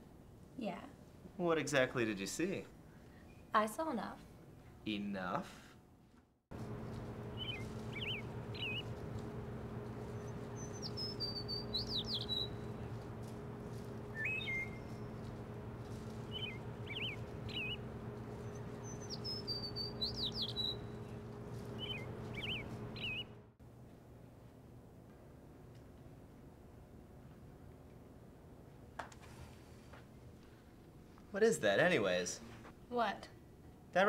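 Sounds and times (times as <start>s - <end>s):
steady low hum: 6.5s - 33.9s
small birds chirping: 6.6s - 23.4s.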